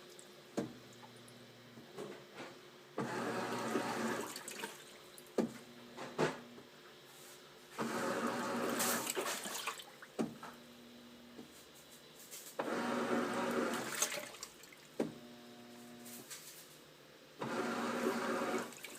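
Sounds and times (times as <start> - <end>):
water surging in washing machine: 3.0 - 5.0, 7.8 - 10.2, 12.6 - 14.9, 17.4 - 18.9
electric hum: 10.4 - 11.4, 15.1 - 16.8.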